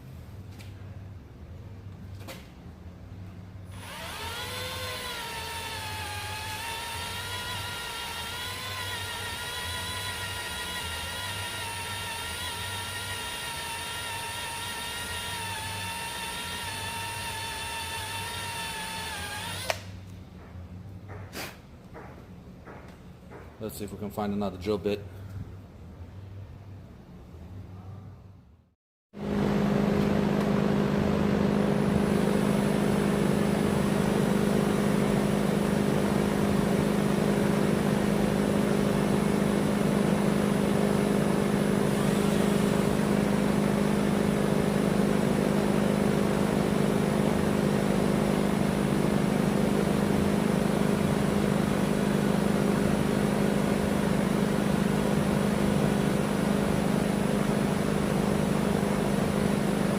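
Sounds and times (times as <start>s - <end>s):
electric drill boring: 3.7s - 19.9s.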